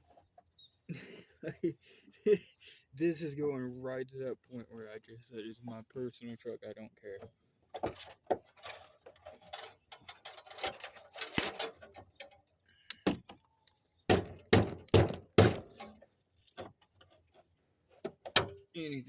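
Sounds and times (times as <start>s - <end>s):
tool clattering on metal: 7.8s - 13.4s, 14.1s - 16.0s, 18.0s - 18.6s
screwdriver striking hard: 14.1s - 15.9s.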